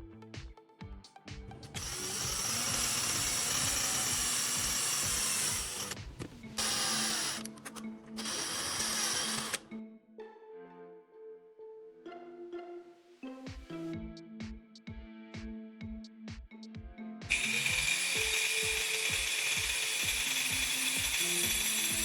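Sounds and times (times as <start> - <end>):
background music: 0.0 - 22.0
power tool running: 1.8 - 9.7, 17.3 - 22.0.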